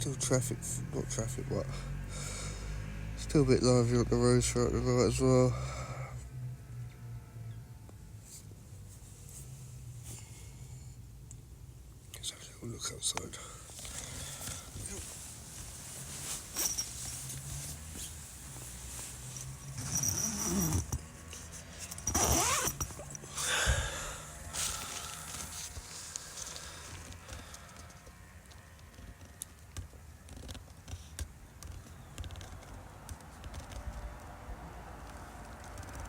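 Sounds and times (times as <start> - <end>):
fabric rustling: 13.6 - 28.0
zip pulled open: 13.8 - 27.7.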